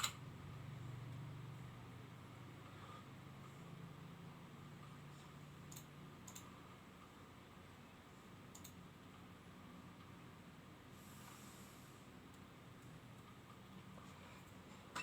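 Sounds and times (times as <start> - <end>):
soft clicks: 5.7 - 6.5, 8.5 - 8.8.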